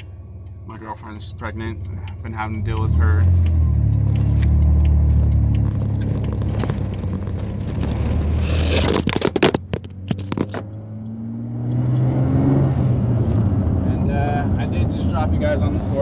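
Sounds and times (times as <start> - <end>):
truck engine humming: 0.0 - 8.8.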